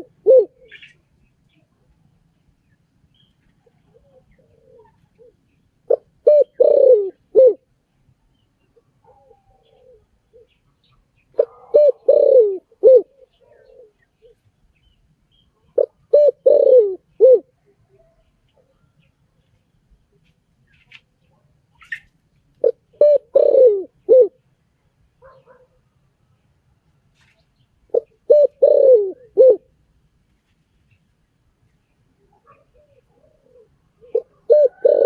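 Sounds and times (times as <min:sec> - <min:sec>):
dove cooing: 0:00.0 - 0:01.6, 0:03.6 - 0:07.7, 0:08.8 - 0:10.6, 0:11.3 - 0:14.4, 0:15.7 - 0:18.9, 0:21.8 - 0:24.4, 0:27.9 - 0:29.7, 0:32.2 - 0:35.0.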